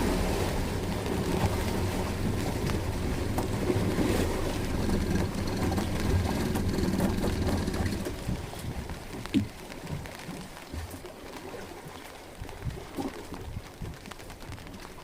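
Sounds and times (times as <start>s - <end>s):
boat motor running: 0.0s - 9.5s
water noise: 0.0s - 15.0s
wind: 0.0s - 15.0s.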